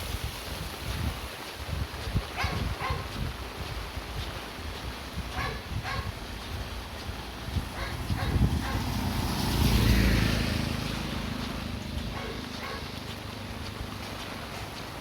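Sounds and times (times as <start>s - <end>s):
light footsteps: 0.4s - 15.0s
vehicle passing on road: 5.5s - 15.0s.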